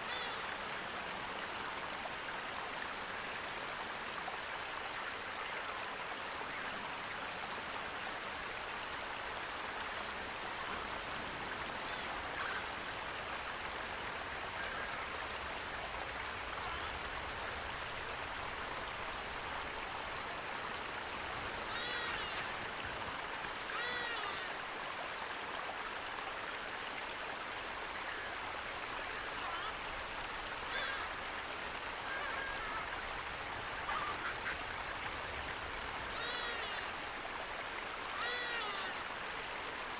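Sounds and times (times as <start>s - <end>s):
flowing water: 0.0s - 39.9s
short pitched animal calls: 21.6s - 22.5s, 38.1s - 39.0s.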